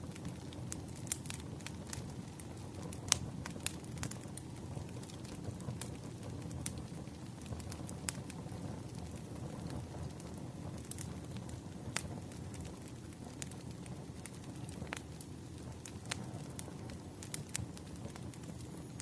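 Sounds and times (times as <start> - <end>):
burning logs popping: 0.0 - 19.0
wood fire crackling: 0.0 - 19.0.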